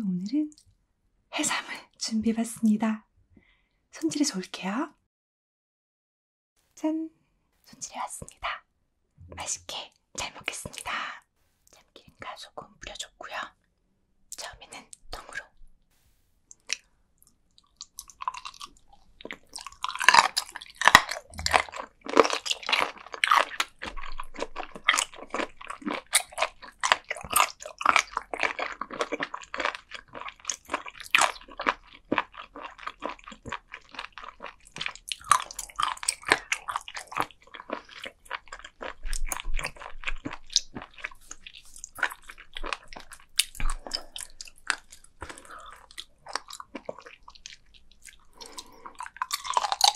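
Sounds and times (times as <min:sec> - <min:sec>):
crunchy biting and chewing: 0:17.6 - 0:49.9.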